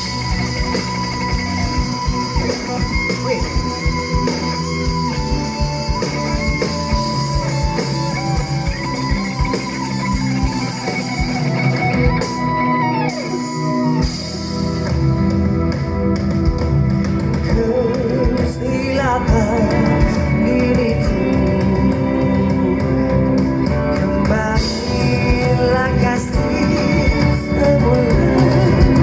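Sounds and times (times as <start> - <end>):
lead guitar bending notes: 0.0 - 18.2
bass guitar: 0.0 - 29.0
drum kit: 0.0 - 29.0.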